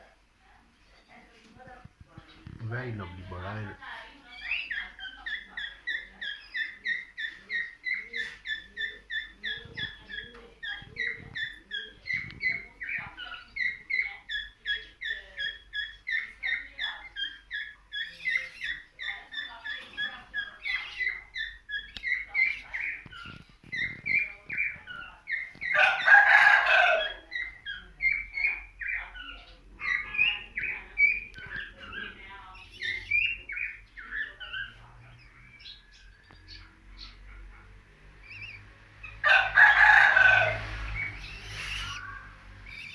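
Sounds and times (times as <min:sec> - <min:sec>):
birds chirping: 0:00.0 - 0:42.9
harsh bird call: 0:39.2 - 0:42.9.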